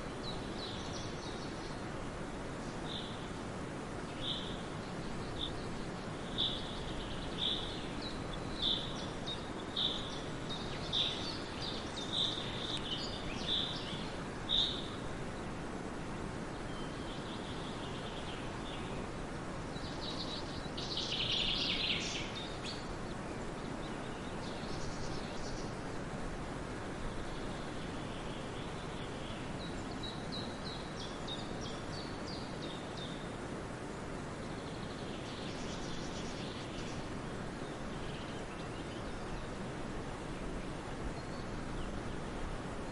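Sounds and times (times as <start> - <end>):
steady background hiss: 0.0 - 42.9
songbird calling: 2.7 - 3.3, 4.0 - 15.1, 16.6 - 19.1, 19.7 - 25.8, 34.3 - 39.6, 41.2 - 42.3.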